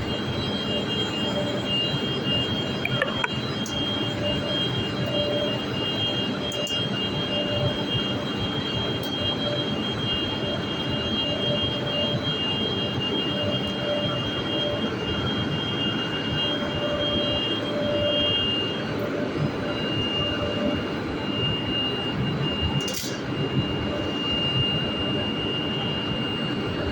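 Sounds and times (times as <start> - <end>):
thin high whine: 0.0 - 26.9.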